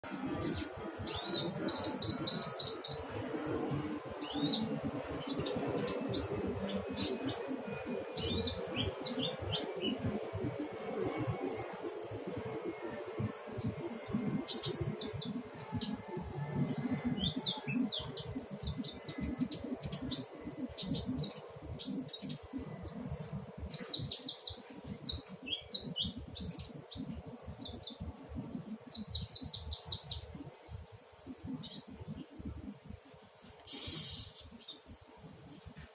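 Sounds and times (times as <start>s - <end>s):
bird chirping and trilling: 33.7s - 34.8s.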